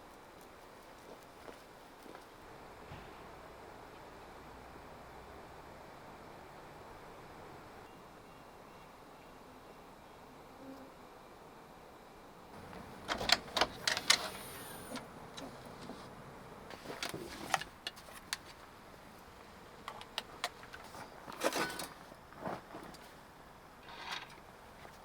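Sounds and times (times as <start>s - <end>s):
objects clinking and clattering: 19.9s - 22.1s.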